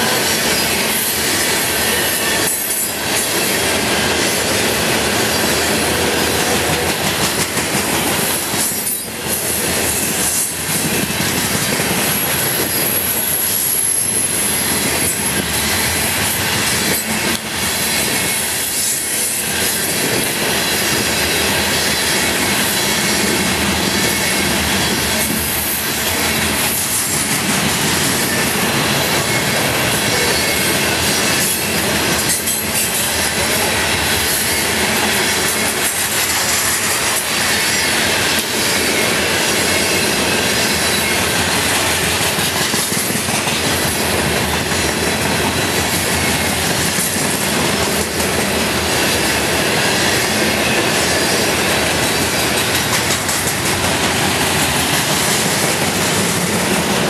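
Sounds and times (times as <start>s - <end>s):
freight train wheels rumbling: 0.0s - 57.0s
high wheel squeal: 27.9s - 33.7s.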